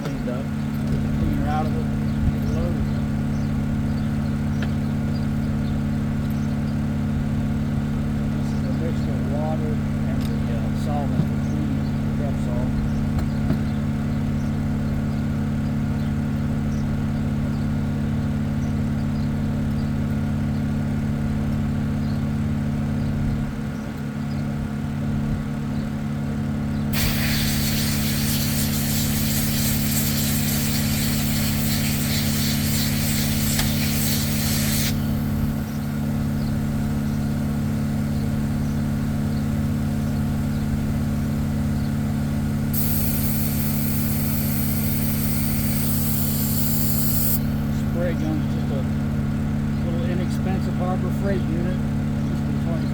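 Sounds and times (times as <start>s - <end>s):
low machine hum: 0.0s - 52.9s
spray gun hissing: 26.9s - 36.1s, 42.7s - 47.8s.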